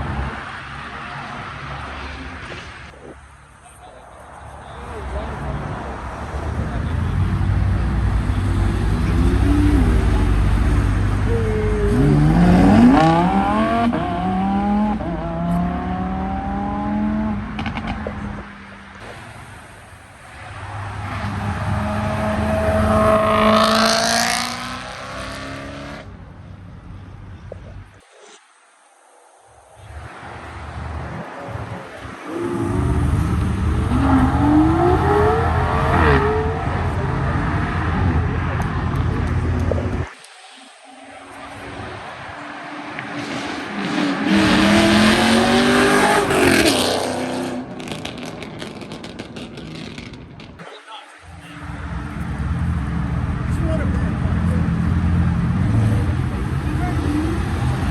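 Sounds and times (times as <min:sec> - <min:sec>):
sports car accelerating past: 0:06.2 - 0:18.6, 0:20.4 - 0:26.1, 0:31.7 - 0:40.1, 0:41.0 - 0:50.2.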